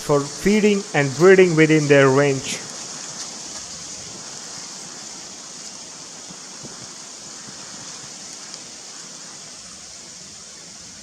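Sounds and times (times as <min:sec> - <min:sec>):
high steady whine: 0:00.0 - 0:07.5
rushing hiss: 0:00.0 - 0:11.0.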